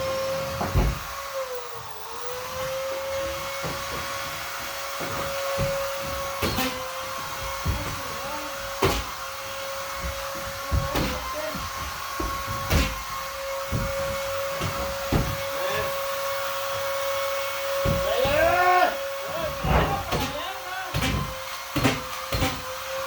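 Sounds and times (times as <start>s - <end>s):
vacuum cleaner motor whine: 0.0s - 23.0s
sharp knocks: 8.7s - 9.2s, 9.9s - 15.6s, 17.8s - 18.5s.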